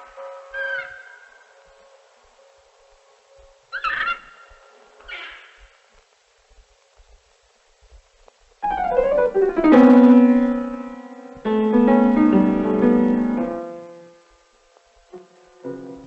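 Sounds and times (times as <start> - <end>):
piano music: 8.6 - 14.2.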